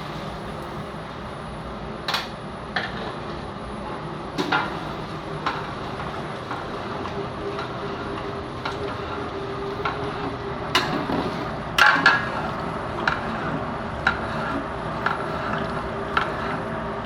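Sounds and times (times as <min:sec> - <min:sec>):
burner and cooking noise: 0:00.0 - 0:17.0.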